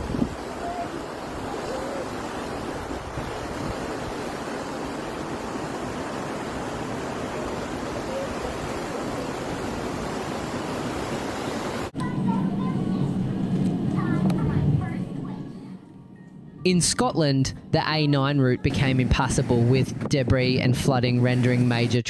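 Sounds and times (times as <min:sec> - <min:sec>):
surf: 0:00.0 - 0:15.9
storm wind: 0:00.0 - 0:20.8.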